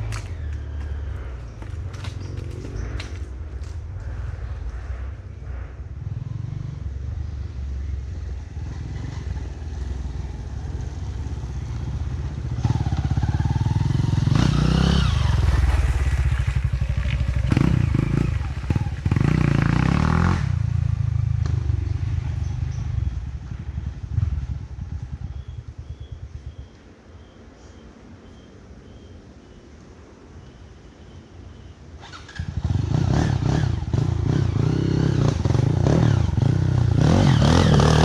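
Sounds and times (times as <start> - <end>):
dirt bike engines running: 0.0 - 28.2, 32.0 - 38.0
dirt bike engine revving: 12.5 - 15.8, 16.6 - 20.6, 32.0 - 38.0.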